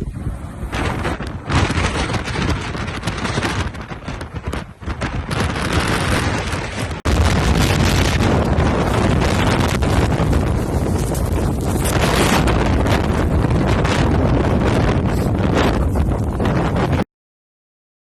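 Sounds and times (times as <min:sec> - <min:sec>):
gusting wind buffeting microphone: 0:00.0 - 0:17.0.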